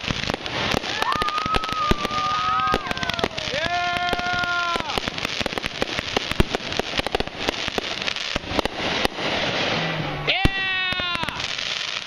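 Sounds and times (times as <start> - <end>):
firework whistle: 0.0 - 5.6, 8.0 - 12.0
fireworks crackling and banging: 0.0 - 12.0.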